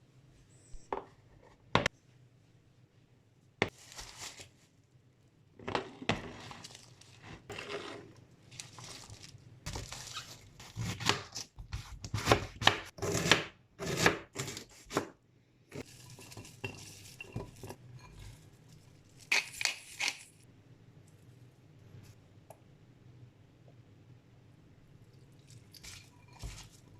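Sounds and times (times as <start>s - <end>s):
knife and utensils clattering: 15.9s - 18.4s.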